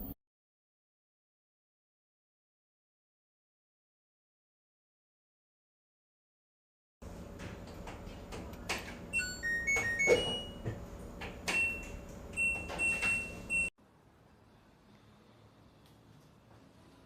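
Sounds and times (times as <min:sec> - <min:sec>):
electronic beep melody: 0:09.2 - 0:10.6.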